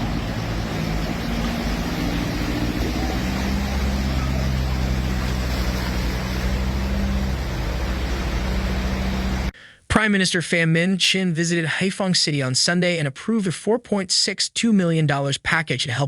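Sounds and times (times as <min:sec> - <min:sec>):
engine droning: 0:00.0 - 0:09.6
rushing noise: 0:00.0 - 0:09.6.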